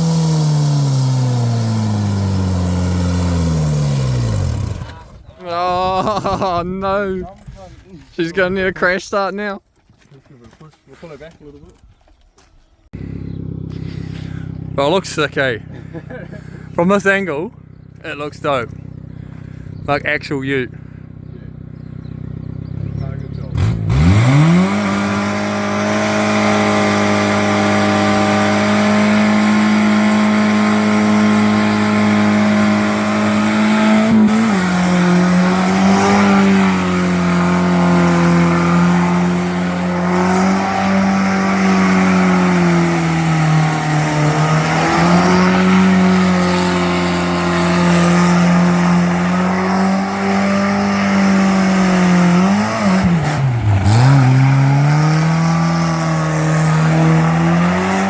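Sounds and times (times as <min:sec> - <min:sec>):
car engine revving hard: 0:00.0 - 0:05.1, 0:21.8 - 0:58.0.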